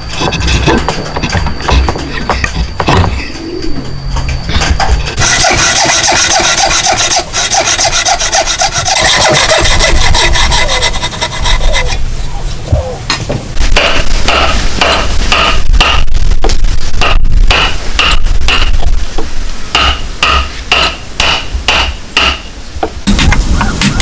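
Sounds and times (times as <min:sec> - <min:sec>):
hand tool scraping wood: 0:05.2 - 0:12.1.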